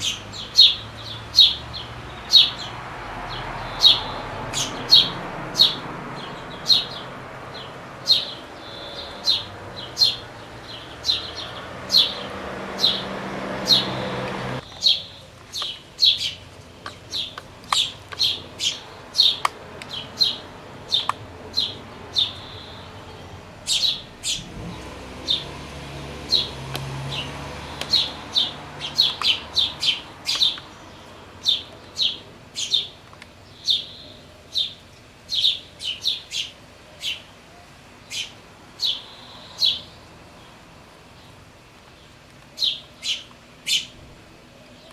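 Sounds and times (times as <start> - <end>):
bird chicks chirping: 0.0 - 37.4, 38.0 - 44.9.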